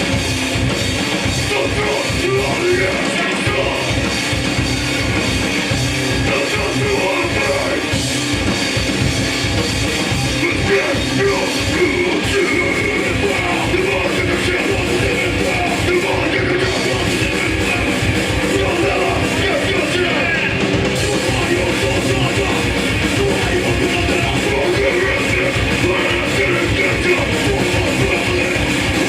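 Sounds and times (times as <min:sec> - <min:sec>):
punk band playing live: 0:00.0 - 0:29.0
shouted vocals: 0:10.3 - 0:28.7.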